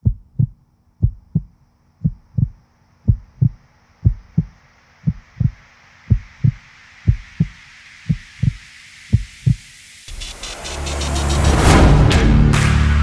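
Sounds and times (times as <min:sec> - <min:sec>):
heartbeat thumps: 0:00.0 - 0:12.5
faint hiss: 0:02.6 - 0:11.3.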